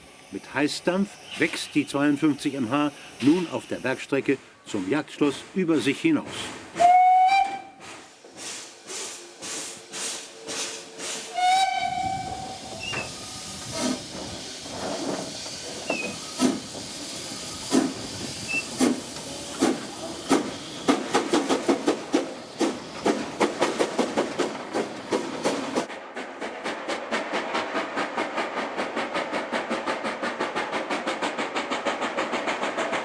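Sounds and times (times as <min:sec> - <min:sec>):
steam locomotive exhaust chuffs: 0:00.0 - 0:04.1, 0:06.8 - 0:33.0
steam hissing: 0:00.0 - 0:04.2, 0:07.8 - 0:25.9
steam whistle: 0:06.8 - 0:07.8, 0:11.3 - 0:13.9.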